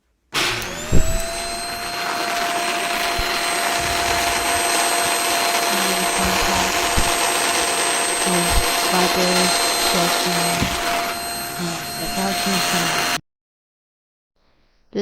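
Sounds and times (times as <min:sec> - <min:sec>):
vacuum cleaner motor whine: 0:00.4 - 0:13.2
thump: 0:00.8 - 0:01.4.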